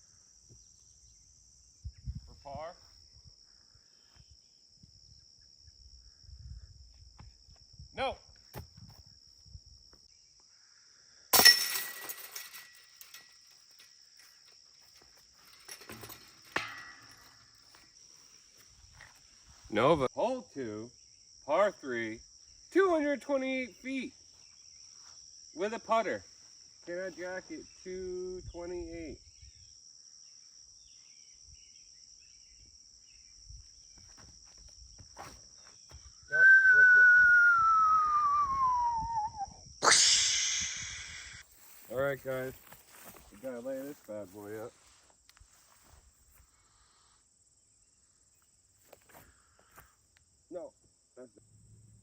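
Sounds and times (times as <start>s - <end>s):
crickets chirring: 0.0s - 52.0s
disc hitting metal basket: 11.3s - 13.9s, 15.4s - 17.6s
metallic clank of basket: 15.5s - 17.4s
insect trilling: 35.7s - 44.0s.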